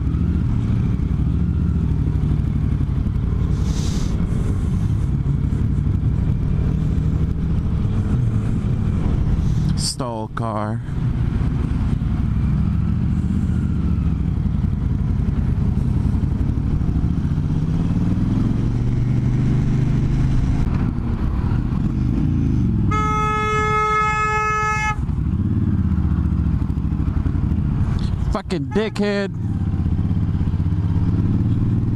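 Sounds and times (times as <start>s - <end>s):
motorcycle engine revving: 0.0s - 9.9s, 10.8s - 31.9s
vehicle horn blast: 22.9s - 25.1s, 28.6s - 29.2s.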